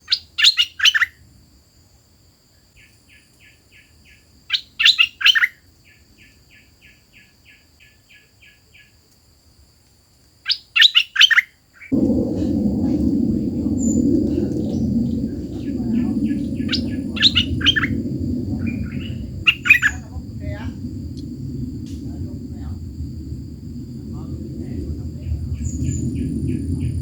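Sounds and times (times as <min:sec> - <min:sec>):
loud low rumble: 0:11.9 - 0:27.0.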